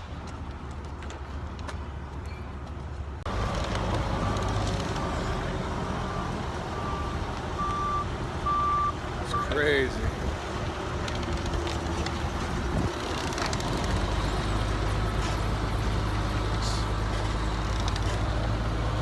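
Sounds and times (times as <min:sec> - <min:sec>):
vehicle engine running: 0:00.2 - 0:19.0
backup alarm beeping: 0:06.1 - 0:09.6.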